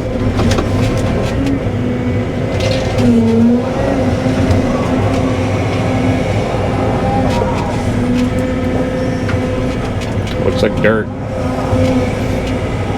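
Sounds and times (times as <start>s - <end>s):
excavator diesel engine running: 0.0s - 12.9s.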